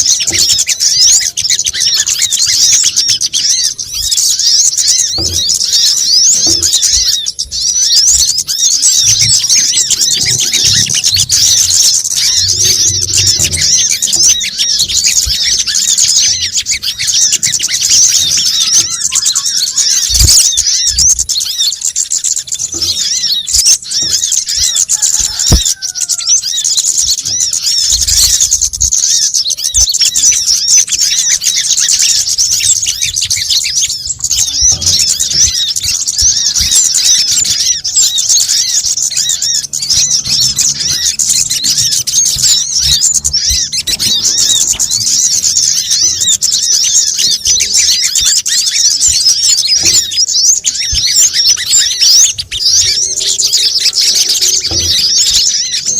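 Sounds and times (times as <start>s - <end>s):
small birds chirping: 0.0s - 55.9s
low thumps: 4.9s - 15.8s.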